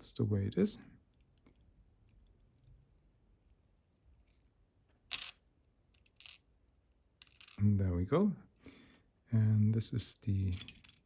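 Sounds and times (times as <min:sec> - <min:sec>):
small metal parts clinking: 0:07.2 - 0:07.7, 0:10.5 - 0:11.0.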